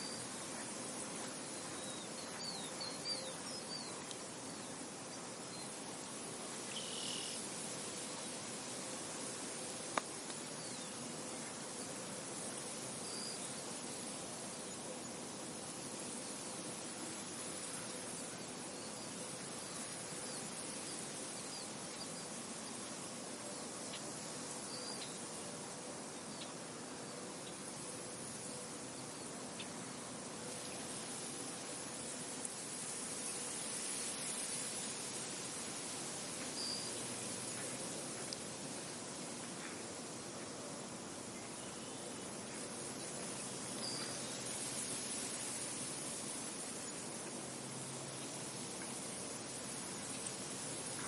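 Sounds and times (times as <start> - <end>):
faint bird chirps: 0.0 - 4.8, 6.6 - 7.4, 23.8 - 25.2, 43.8 - 44.4
wind blowing through field: 0.0 - 51.0.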